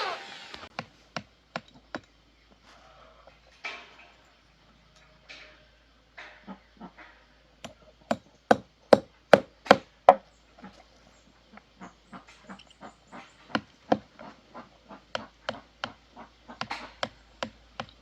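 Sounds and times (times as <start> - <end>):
hammer striking wood: 7.6 - 10.2.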